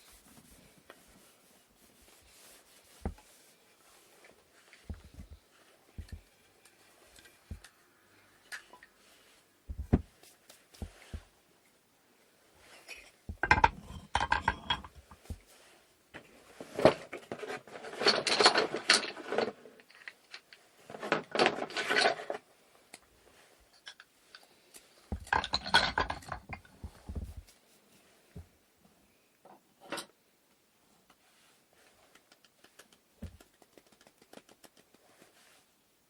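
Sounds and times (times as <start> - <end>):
wooden parts clattering and scraping: 12.9 - 15.4, 16.7 - 19.7, 25.1 - 27.4.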